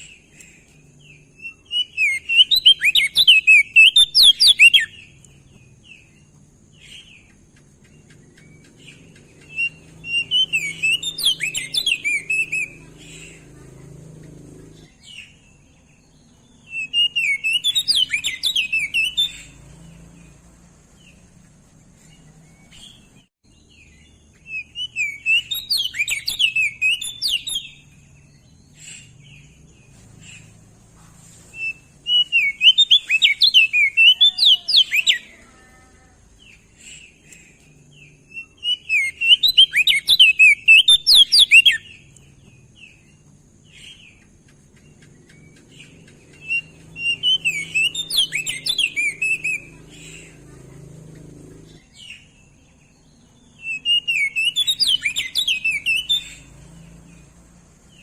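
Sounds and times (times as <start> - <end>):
bird singing: 0.0 - 58.0.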